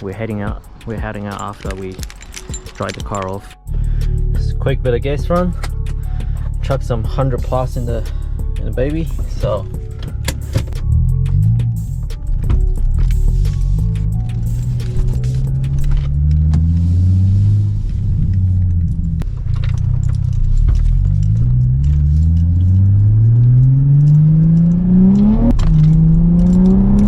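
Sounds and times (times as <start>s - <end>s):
car engine accelerating hard: 12.8s - 27.0s.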